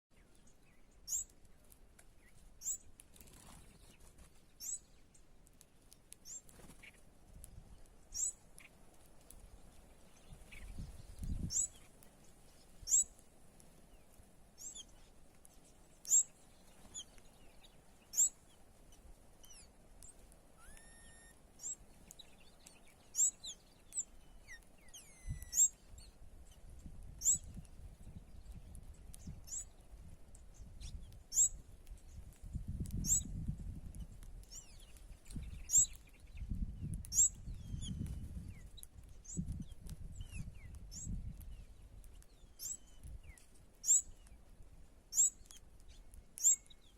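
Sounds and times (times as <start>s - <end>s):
small birds chirping: 0.1s - 46.9s
lower gliding bird calls: 12.8s - 13.1s, 20.6s - 22.4s, 23.1s - 25.9s.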